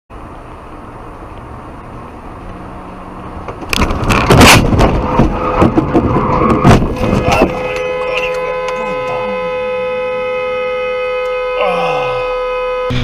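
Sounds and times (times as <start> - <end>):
car road and engine noise: 0.1 - 13.0
car collision crash: 3.6 - 7.8.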